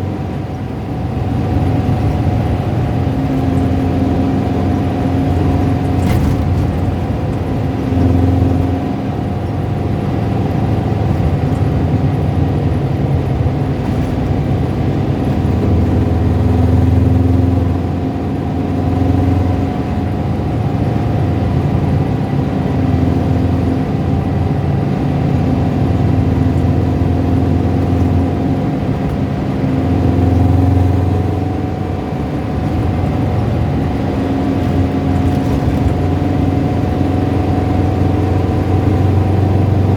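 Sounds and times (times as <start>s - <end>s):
car engine running at low revs: 0.0s - 39.9s
engine rattling and tapping: 0.0s - 39.9s.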